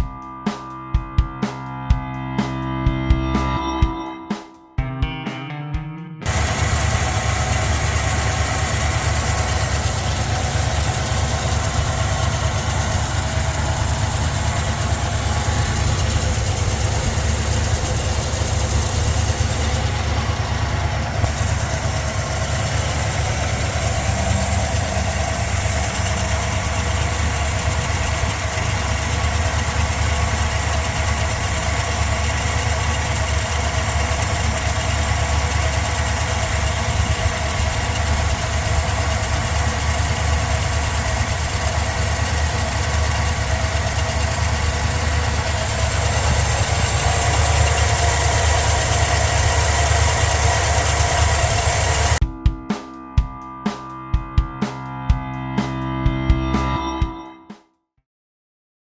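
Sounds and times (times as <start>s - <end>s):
car engine idling: 6.2s - 52.3s.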